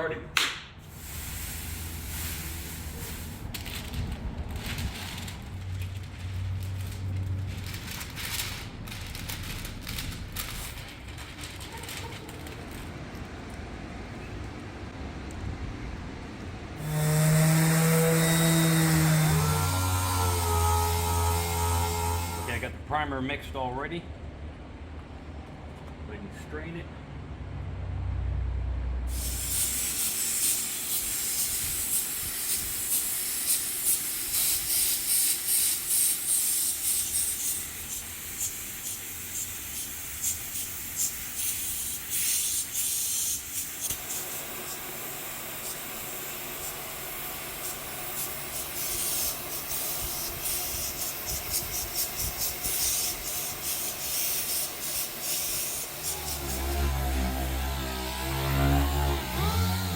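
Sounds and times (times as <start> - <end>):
paint spray gun hissing: 0.8 - 3.5, 29.1 - 56.6.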